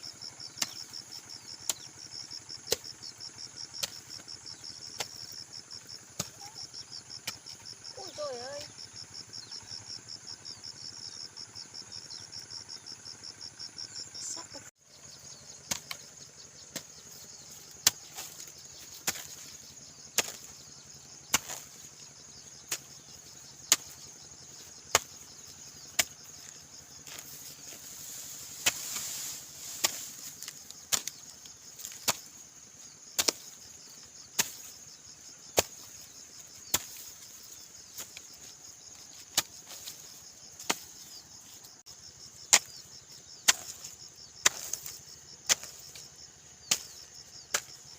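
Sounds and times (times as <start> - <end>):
fast insect trill: 0.0 - 47.9
insects chirping: 0.0 - 47.9
hoe chopping into soil: 0.6 - 1.0, 2.6 - 3.0, 3.8 - 5.3, 15.6 - 16.1, 16.7 - 22.0, 22.6 - 23.0, 23.6 - 32.4, 33.2 - 33.7, 34.3 - 34.8, 35.5 - 41.2, 42.4 - 47.9.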